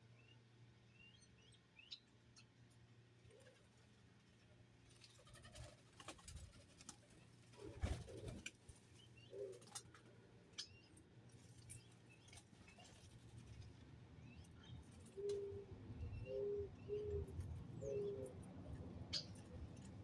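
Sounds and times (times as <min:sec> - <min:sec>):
small birds chirping: 0:00.0 - 0:03.6, 0:07.6 - 0:20.0
doves cooing: 0:07.5 - 0:08.5, 0:09.2 - 0:10.0, 0:15.0 - 0:18.5.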